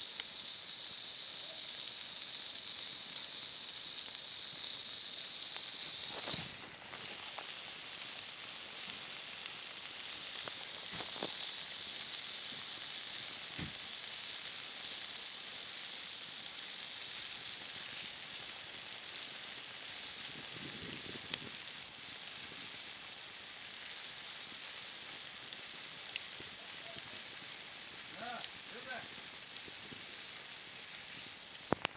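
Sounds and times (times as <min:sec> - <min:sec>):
chicken sizzling over campfire: 0:00.0 - 0:31.9
sharp fire pops: 0:02.1 - 0:14.8, 0:19.1 - 0:31.9.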